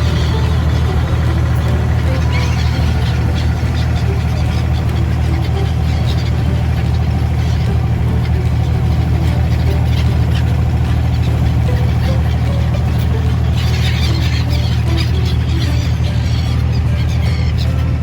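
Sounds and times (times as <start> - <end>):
engine droning: 0.0 - 18.0
faint bird calls: 0.0 - 18.0.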